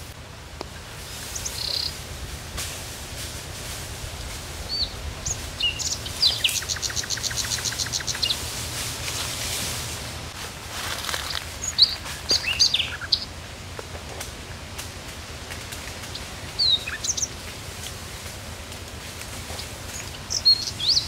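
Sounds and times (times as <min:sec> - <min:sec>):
birds chirping: 0:00.0 - 0:02.1, 0:04.6 - 0:08.8, 0:11.0 - 0:13.4, 0:15.9 - 0:18.0, 0:19.2 - 0:21.0
low background hum: 0:00.0 - 0:21.0
bird trill: 0:01.3 - 0:02.0, 0:04.7 - 0:08.4, 0:11.2 - 0:13.3, 0:16.6 - 0:17.3, 0:20.0 - 0:21.0.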